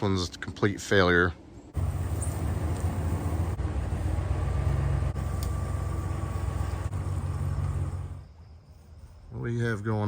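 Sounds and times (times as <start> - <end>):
excavator diesel engine running: 1.8 - 8.2.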